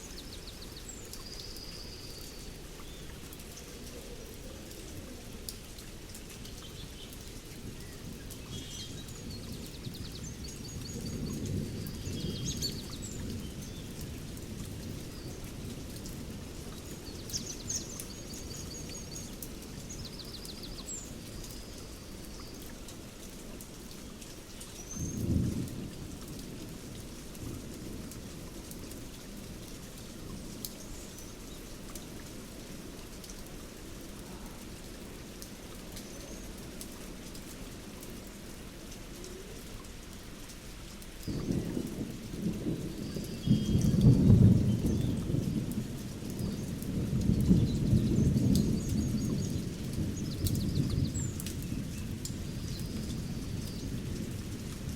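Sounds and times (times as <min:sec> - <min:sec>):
steady rain: 0:00.0 - 0:54.9
thunder rumbling: 0:41.3 - 0:54.9.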